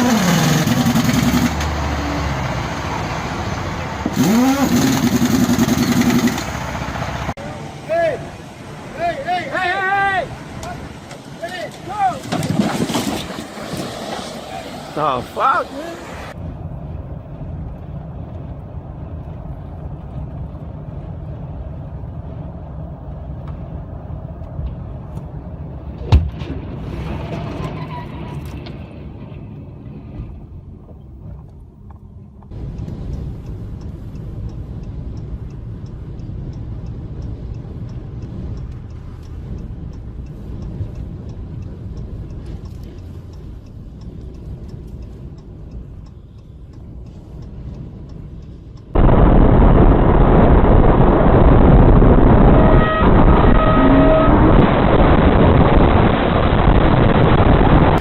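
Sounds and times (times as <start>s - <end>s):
heavy vehicle engine rumbling: 0.0s - 58.0s
faint rapid ticking: 32.5s - 49.1s.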